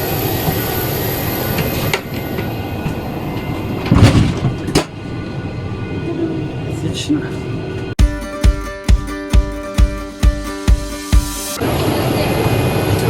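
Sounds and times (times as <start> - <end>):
airliner cabin hum: 0.0 - 8.0, 11.6 - 13.0
heavy clunk of aircraft door: 3.7 - 5.0.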